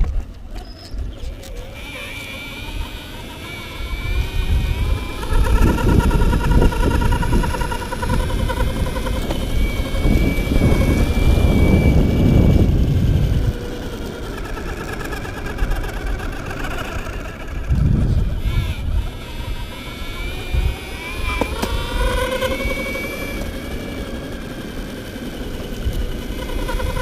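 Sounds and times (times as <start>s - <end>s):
electric skateboard belt whine: 0.0s - 27.0s
heavy low rumble: 17.5s - 19.5s.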